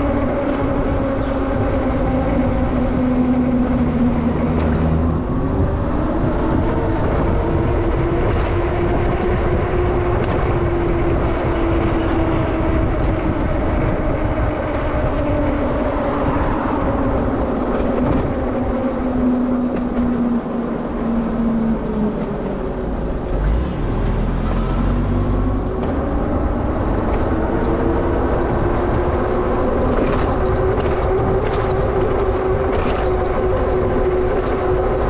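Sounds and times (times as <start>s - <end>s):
wind and road noise: 0.0s - 35.0s.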